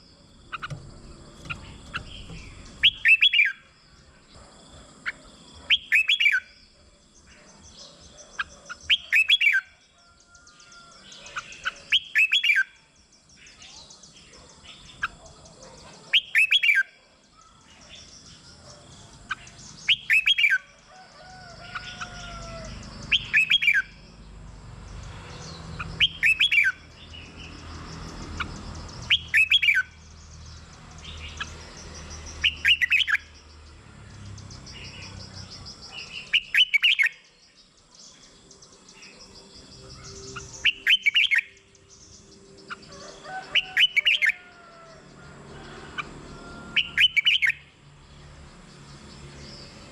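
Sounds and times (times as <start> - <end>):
faint bird chirps: 0.0 - 24.0, 34.5 - 45.0
bulbul whistled song: 2.4 - 3.6, 5.7 - 6.6, 8.9 - 9.8, 11.9 - 12.8, 16.2 - 16.9, 19.9 - 20.6, 23.1 - 23.9, 26.0 - 26.8, 29.1 - 29.9, 32.4 - 33.3, 36.2 - 37.2, 40.0 - 41.7.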